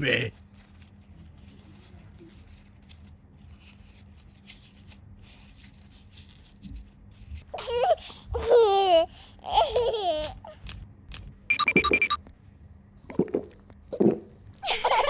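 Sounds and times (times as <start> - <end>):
baby laughing and babbling: 7.5 - 10.7.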